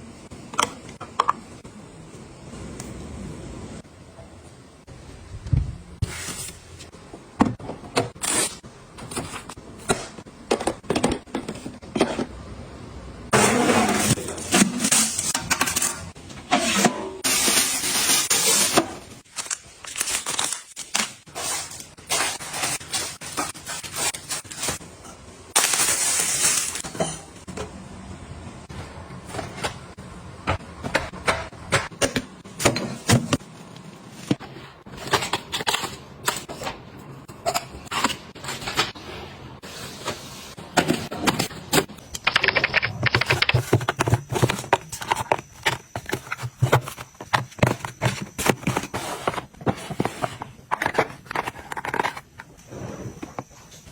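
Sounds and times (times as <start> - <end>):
containers clicking and clinking: 42.1 - 52.5.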